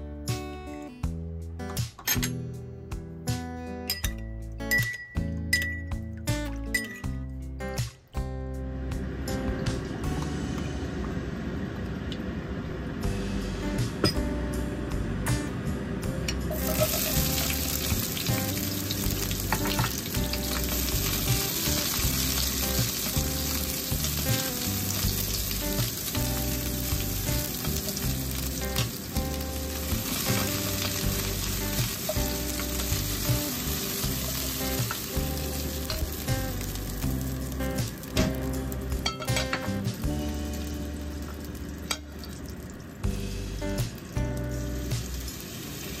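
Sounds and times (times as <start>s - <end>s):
background music: 0.0s - 11.5s, 13.0s - 46.0s
chopsticks stirring: 16.5s - 17.6s
onions sizzling in hot oil: 16.5s - 46.0s.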